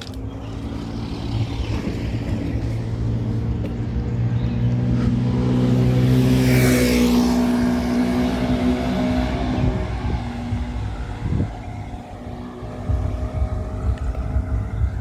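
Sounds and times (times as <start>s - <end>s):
motor vehicle passing: 0.0s - 15.0s
low uneven rumble: 7.5s - 15.0s.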